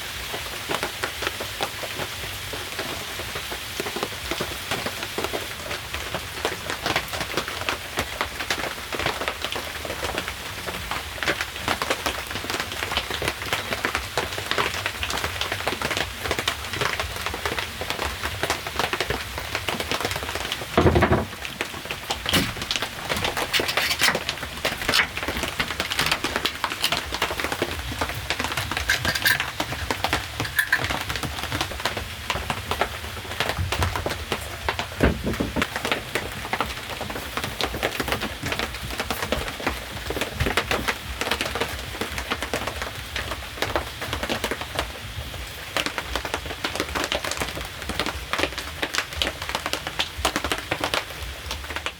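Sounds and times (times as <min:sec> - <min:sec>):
rain pattering: 0:00.0 - 0:51.9
heavy thump: 0:20.8 - 0:21.4.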